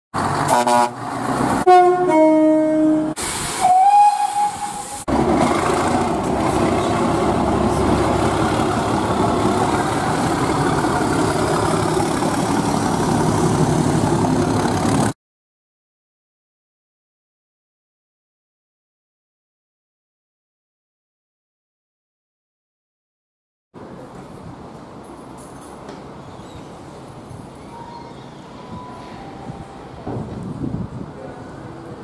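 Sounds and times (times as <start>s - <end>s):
diesel locomotive passing: 0.2s - 15.2s, 25.8s - 32.0s
train horn blasts: 0.5s - 1.0s, 1.6s - 5.0s.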